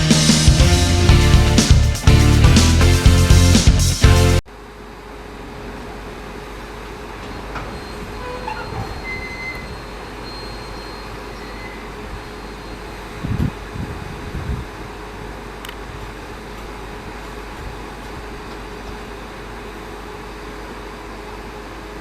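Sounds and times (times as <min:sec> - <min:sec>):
music intro: 0:00.0 - 0:04.4
faint high squeals: 0:07.3 - 0:13.3.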